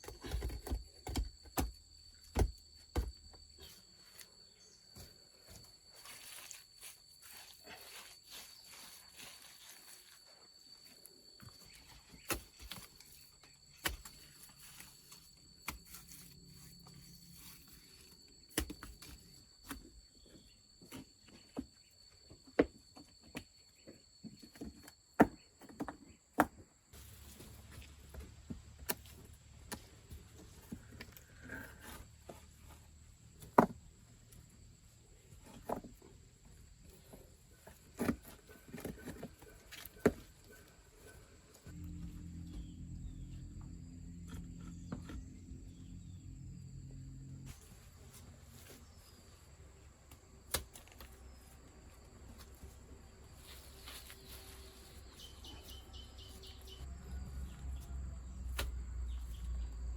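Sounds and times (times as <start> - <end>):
faint steady high tone: 0.0 - 50.3.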